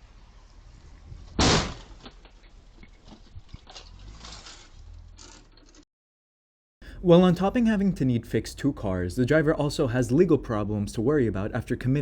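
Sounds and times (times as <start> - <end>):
car collision bang: 1.3 - 2.3.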